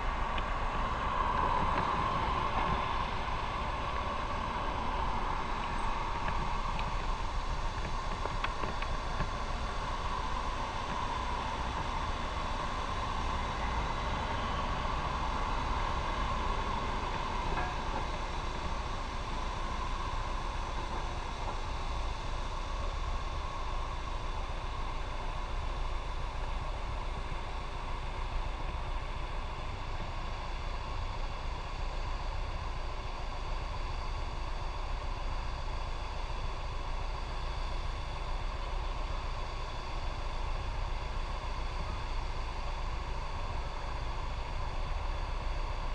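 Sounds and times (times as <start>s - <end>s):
road noise: 0.0s - 21.3s
motorcycle engine drone: 0.0s - 30.1s.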